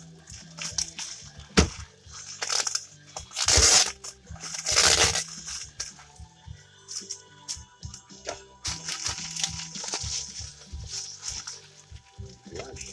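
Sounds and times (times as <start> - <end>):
packing material crinkling: 2.2 - 5.9, 8.6 - 12.9
packing material scrunching: 2.2 - 5.9, 8.6 - 12.9.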